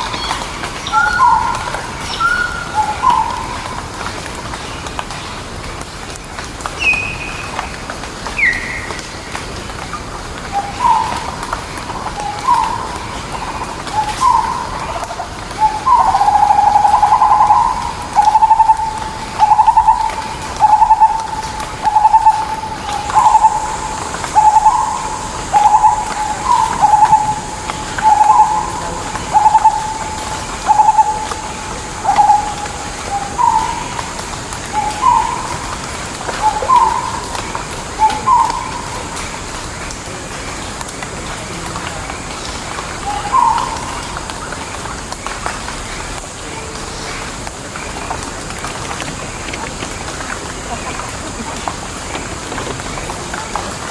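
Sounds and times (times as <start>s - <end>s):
bird calling: 0.0s - 3.8s, 10.4s - 39.4s, 43.0s - 45.0s.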